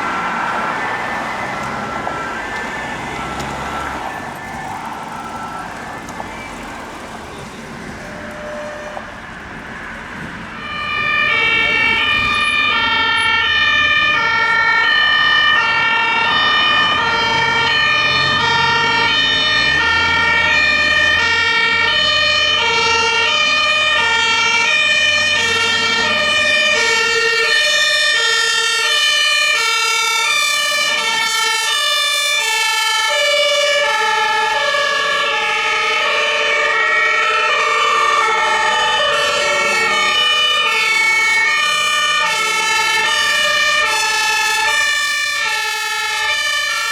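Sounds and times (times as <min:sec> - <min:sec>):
low vehicle engine rumble: 0:00.0 - 0:14.2
two-tone emergency sirens: 0:00.0 - 0:46.9.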